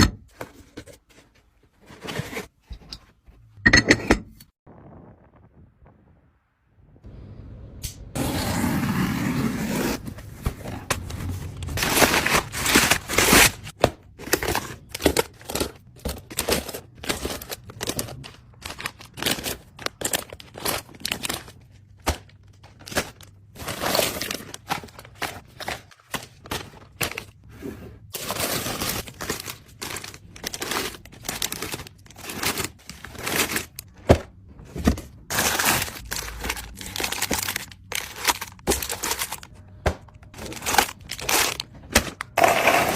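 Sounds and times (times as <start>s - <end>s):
items clicking and knocking: 10.4s - 27.5s
wrappers crinkling: 11.0s - 27.3s, 28.2s - 33.9s, 35.3s - 39.6s, 40.3s - 41.7s.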